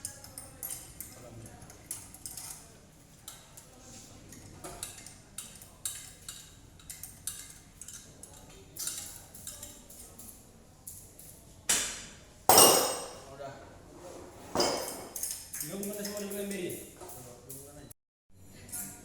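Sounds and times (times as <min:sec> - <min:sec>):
light metallic clicks and clinks: 0:00.0 - 0:11.4, 0:14.7 - 0:17.8, 0:18.6 - 0:19.0.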